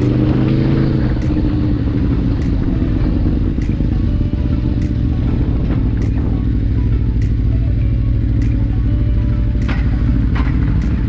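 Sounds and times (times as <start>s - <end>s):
wind noise on microphone: 0.0s - 7.5s
motorcycle engine and road rumble: 0.0s - 11.0s.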